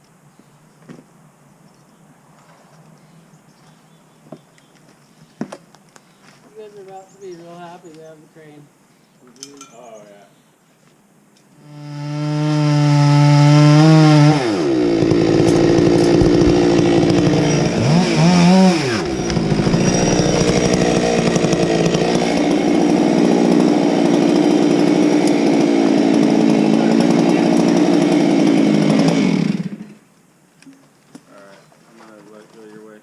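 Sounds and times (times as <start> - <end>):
chainsaw cutting wood: 11.6 - 30.0.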